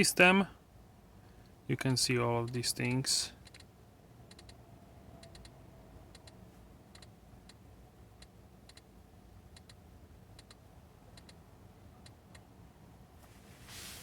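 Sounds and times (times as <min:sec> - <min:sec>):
infotainment control clicks: 0:09.5 - 0:09.8.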